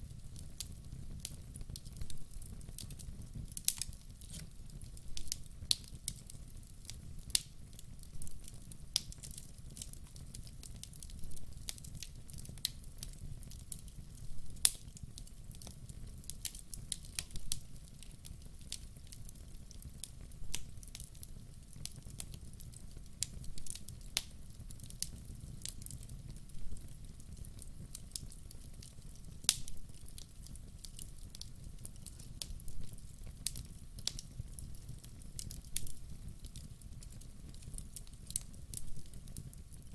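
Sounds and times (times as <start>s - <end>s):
log fire crackling: 0.0s - 39.9s.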